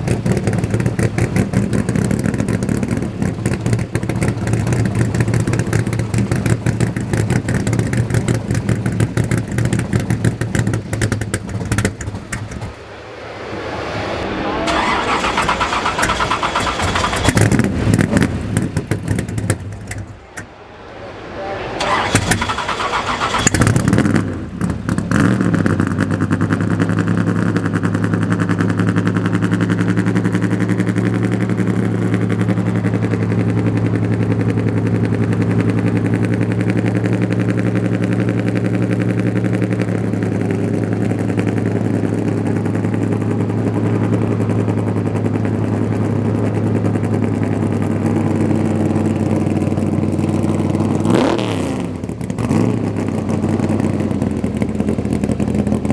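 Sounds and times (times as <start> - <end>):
car engine revving and idling: 0.0 - 55.9.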